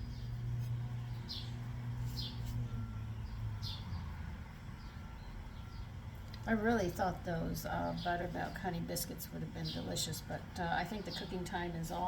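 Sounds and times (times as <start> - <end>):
small bird chirping: 0.0 - 4.2
steady low hum: 0.0 - 12.0.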